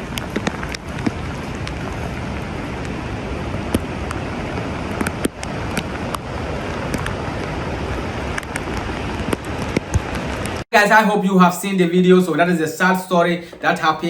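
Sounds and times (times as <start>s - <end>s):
wind: 0.0s - 10.6s.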